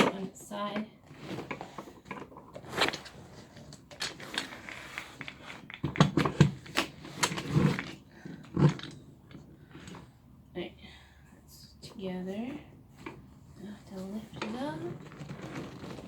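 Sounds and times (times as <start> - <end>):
chair parts knocking and scraping: 0.0 - 10.1, 14.1 - 16.0.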